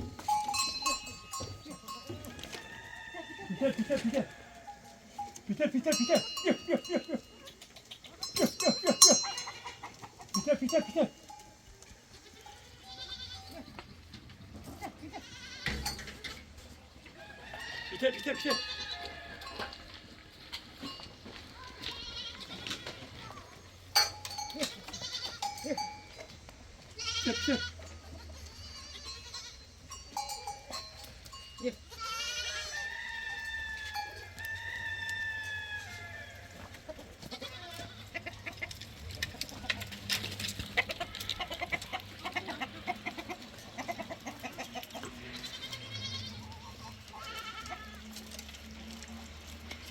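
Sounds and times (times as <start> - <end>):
goats bleating: 0.0 - 7.5, 8.1 - 16.0, 17.2 - 20.0, 21.5 - 48.6
rooster crowing: 2.2 - 4.9, 17.2 - 19.8, 32.5 - 36.6.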